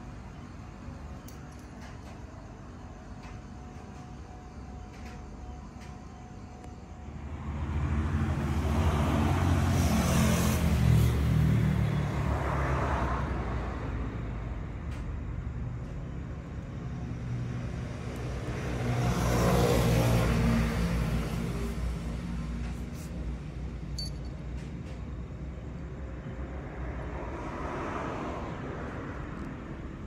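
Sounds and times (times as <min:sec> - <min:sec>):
vehicles passing: 0:06.4 - 0:30.0
vehicle engine humming: 0:14.6 - 0:26.6.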